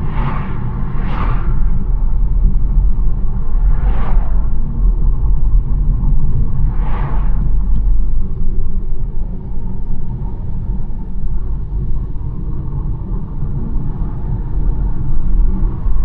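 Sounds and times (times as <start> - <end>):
brief whoosh: 0.0 - 2.6, 3.2 - 4.7
car tyres and engine rumble: 0.0 - 16.0
faint engine hum: 0.0 - 16.0.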